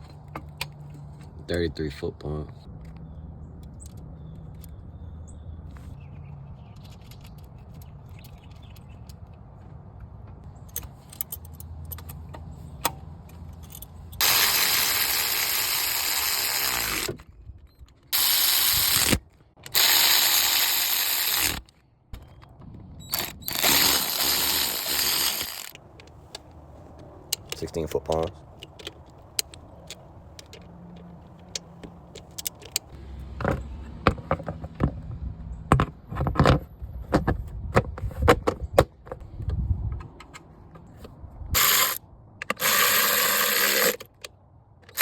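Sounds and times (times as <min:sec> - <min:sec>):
power drill motor running: 0:14.2 - 0:17.2, 0:18.2 - 0:21.6, 0:23.1 - 0:25.8, 0:41.6 - 0:44.0.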